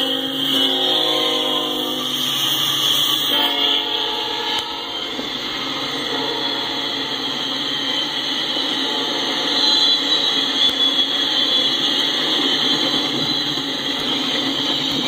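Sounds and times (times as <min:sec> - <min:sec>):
steel wheels on rails: 0:00.0 - 0:15.0.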